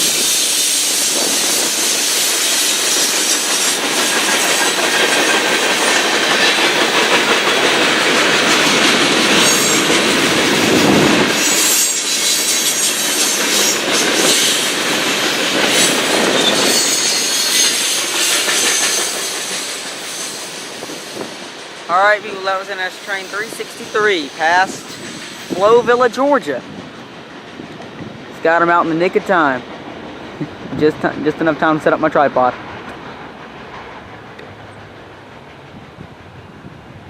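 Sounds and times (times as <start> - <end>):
train wheels clattering on rails: 0.0 - 37.0
faint high wheel squeal: 16.4 - 18.0.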